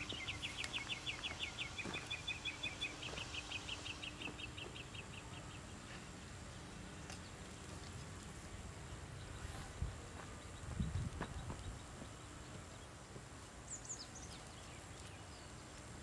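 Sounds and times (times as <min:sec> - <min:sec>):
bird chirping rapidly: 0:00.0 - 0:05.9.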